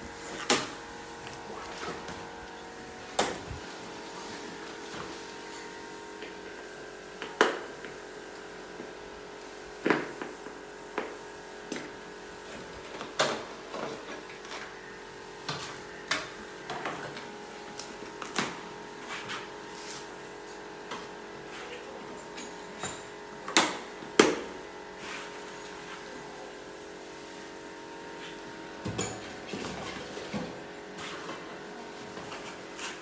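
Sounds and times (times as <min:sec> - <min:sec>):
steady hum: 0:00.0 - 0:08.3.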